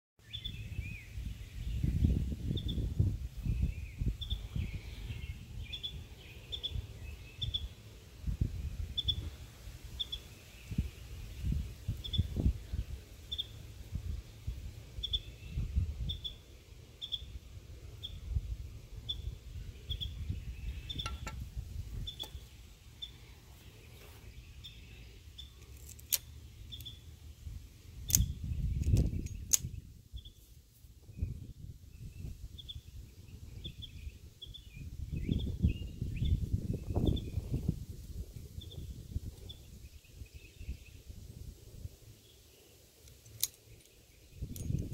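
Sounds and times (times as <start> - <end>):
bird chirping: 0.2 - 13.6, 15.0 - 18.4, 19.0 - 27.2, 28.1 - 30.5, 31.1 - 37.7
sharp clicks: 25.6 - 27.0, 28.0 - 29.8.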